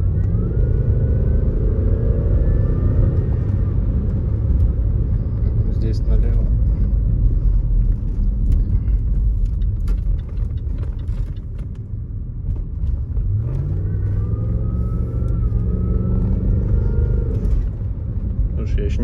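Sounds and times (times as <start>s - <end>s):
supercharger whine: 0.0s - 7.4s, 13.1s - 19.0s
car engine rumbling and accelerating: 0.0s - 19.0s.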